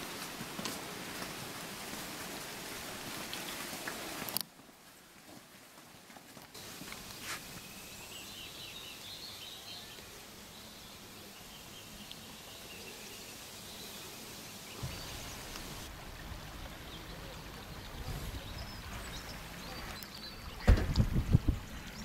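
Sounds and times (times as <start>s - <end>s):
small birds chirping: 6.5s - 22.0s.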